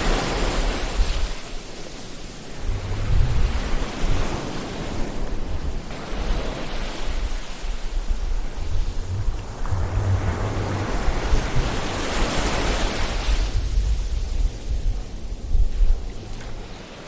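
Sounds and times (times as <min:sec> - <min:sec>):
ocean waves on shore: 0:00.0 - 0:17.0.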